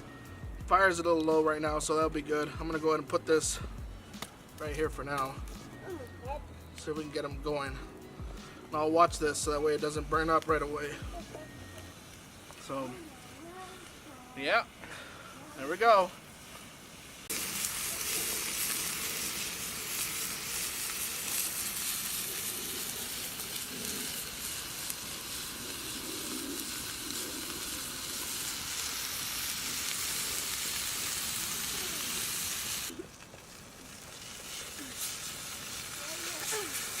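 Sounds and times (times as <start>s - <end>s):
patties sizzling in a pan: 17.0s - 37.0s.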